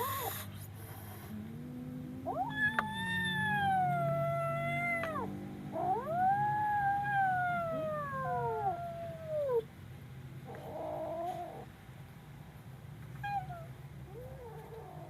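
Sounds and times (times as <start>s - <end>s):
kitten crying: 2.2s - 9.6s, 13.2s - 15.0s.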